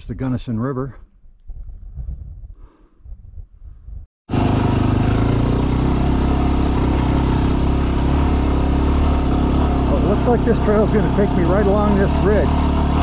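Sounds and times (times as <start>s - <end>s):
wind noise on microphone: 1.0s - 4.1s
motorcycle engine running: 4.3s - 13.0s.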